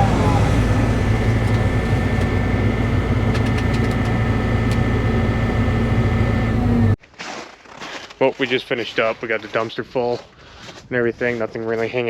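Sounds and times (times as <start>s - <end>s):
excavator diesel engine running: 0.0s - 7.0s.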